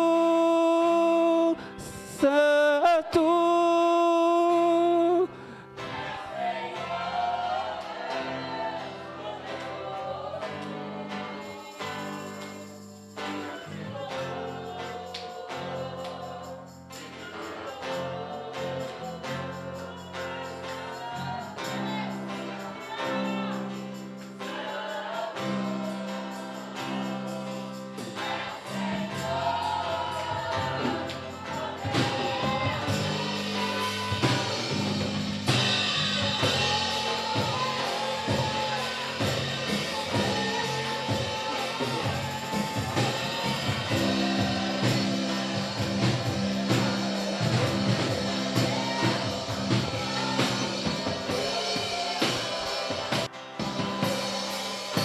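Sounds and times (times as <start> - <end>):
voices singing: 0.0 - 55.0
drums: 18.7 - 55.0.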